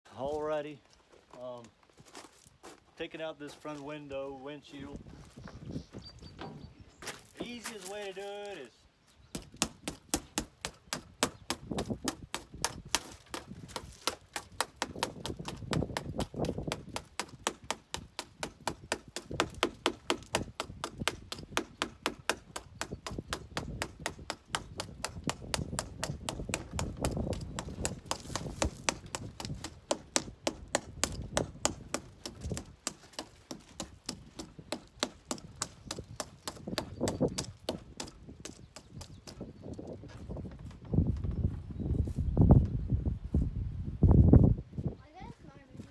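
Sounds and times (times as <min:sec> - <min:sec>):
tools knocking on windshield: 0:09.4 - 0:39.1.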